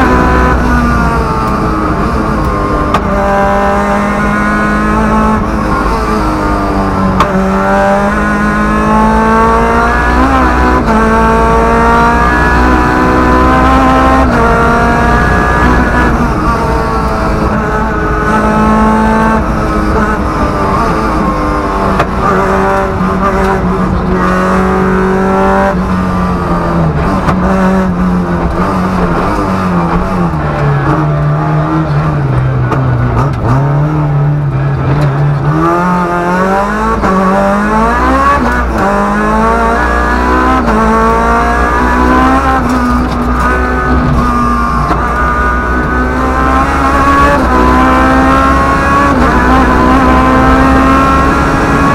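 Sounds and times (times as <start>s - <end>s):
rally car engine accelerating: 0.0s - 51.9s
road and tyre rumble: 0.0s - 51.9s.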